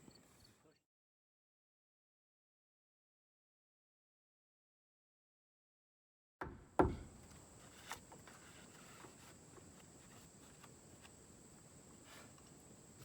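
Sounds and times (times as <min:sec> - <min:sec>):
dull knocks: 0:06.4 - 0:07.3
faint scattered ticks: 0:07.2 - 0:13.0.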